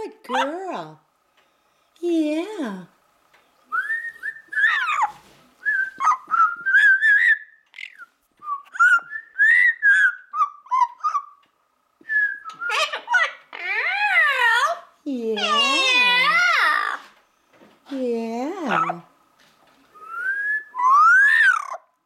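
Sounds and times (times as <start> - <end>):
parrot whistling: 3.7 - 11.4, 12.1 - 14.7, 20.0 - 21.9.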